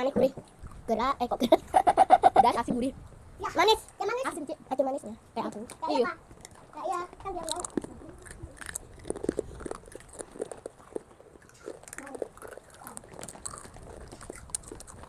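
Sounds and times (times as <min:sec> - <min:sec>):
crispy chips crunching: 0:07.4 - 0:15.0.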